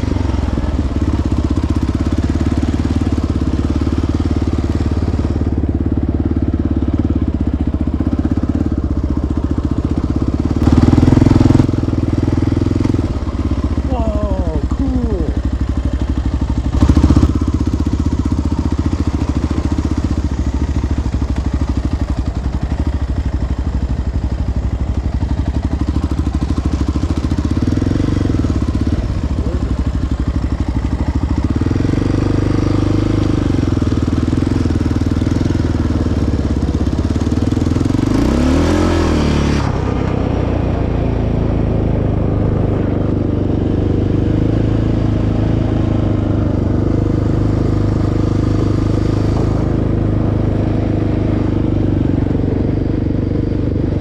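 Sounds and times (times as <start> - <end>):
engine revving: 10.2 - 15.4, 16.6 - 22.6, 26.2 - 54.0.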